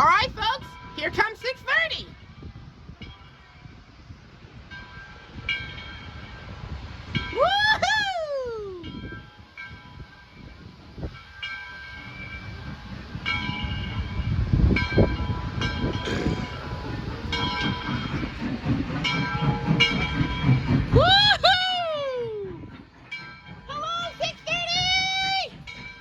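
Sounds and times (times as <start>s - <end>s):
locomotive running rumble: 12.4s - 26.0s.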